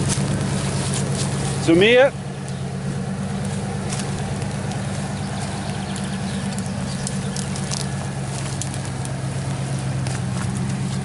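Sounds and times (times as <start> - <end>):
truck engine running at low revs: 0.0 - 11.0
small clicks and crackles: 3.3 - 11.0.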